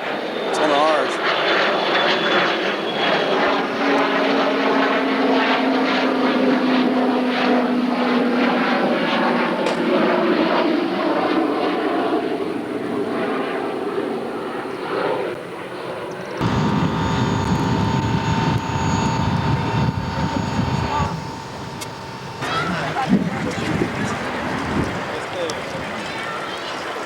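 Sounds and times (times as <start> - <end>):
aircraft engine drone: 0.0 - 15.0, 16.4 - 26.0
pulsing rush of noise: 16.4 - 23.1.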